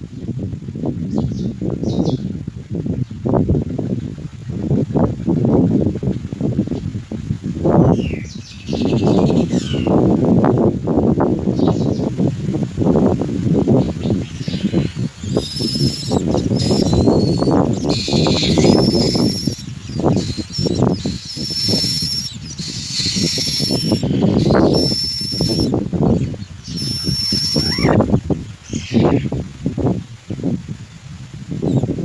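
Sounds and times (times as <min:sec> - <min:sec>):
chicks giving high thin calls: 0:13.7 - 0:29.4.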